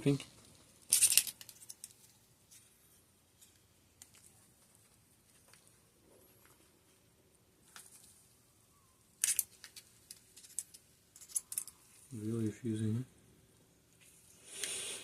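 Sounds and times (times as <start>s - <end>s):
hand tools clicking and scraping: 9.2s - 12.1s.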